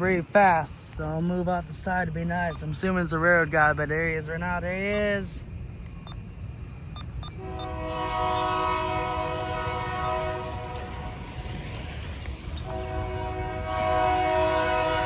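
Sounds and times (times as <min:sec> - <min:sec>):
locomotive air horn blasts: 0:07.4 - 0:11.6, 0:12.6 - 0:15.0.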